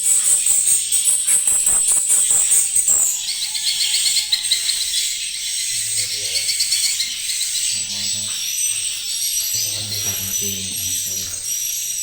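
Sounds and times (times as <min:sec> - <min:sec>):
swiftlets twittering: 0:05.7 - 0:12.0.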